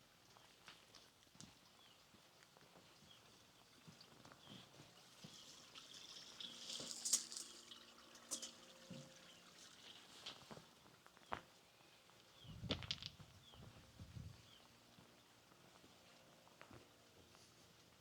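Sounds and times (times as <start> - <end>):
faint footsteps: 0.3 - 5.8, 10.1 - 18.0
water trickling: 4.5 - 10.8.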